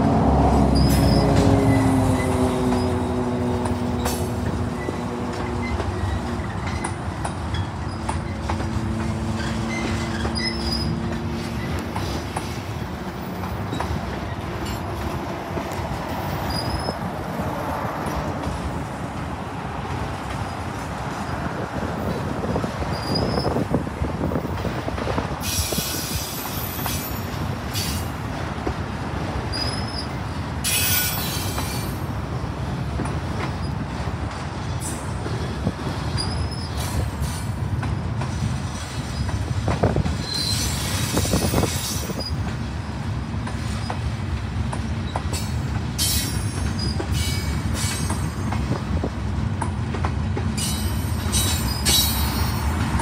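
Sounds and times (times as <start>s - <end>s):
freight train wheels rumbling on rail: 0.0s - 53.0s
high-pitched wheel squeals: 7.5s - 11.8s, 16.4s - 17.1s, 22.9s - 23.6s, 40.2s - 42.4s
train hisses: 25.3s - 28.2s, 30.6s - 32.0s, 36.7s - 37.7s.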